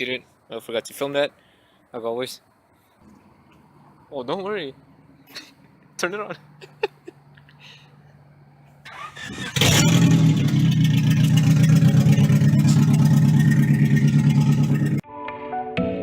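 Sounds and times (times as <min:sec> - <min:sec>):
car engine starting and idling: 0:03.0 - 0:15.0.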